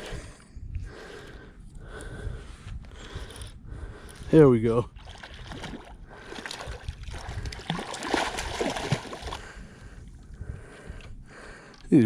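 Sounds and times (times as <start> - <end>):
fish thrashing in water: 5.0 - 9.5.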